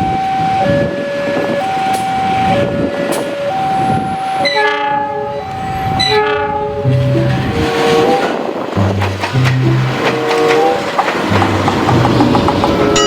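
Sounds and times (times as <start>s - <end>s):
train running noise: 0.0s - 13.0s
train horn blasts: 3.1s - 11.9s.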